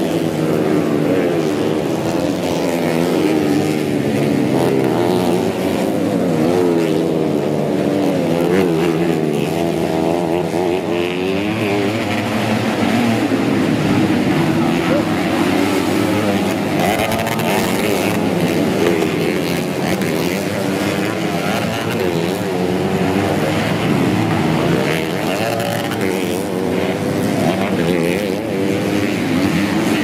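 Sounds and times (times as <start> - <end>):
motorcycle engines revving: 0.0 - 30.0.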